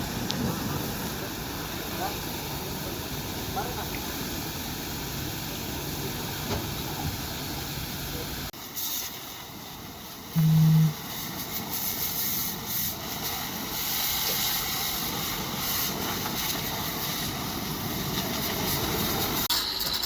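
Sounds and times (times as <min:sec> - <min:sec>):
loud low tone: 0:10.4 - 0:11.0.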